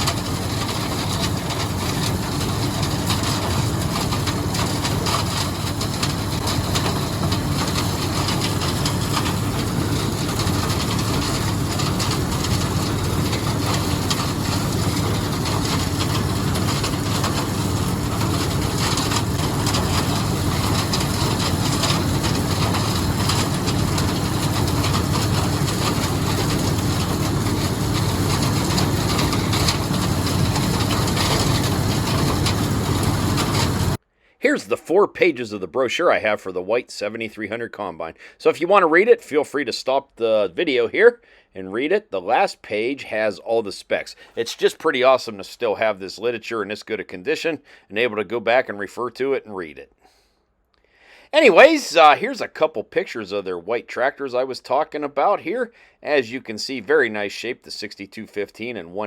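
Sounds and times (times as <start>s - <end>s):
combine engine drone: 0.0s - 34.0s
threshing machinery rattling: 0.0s - 34.0s.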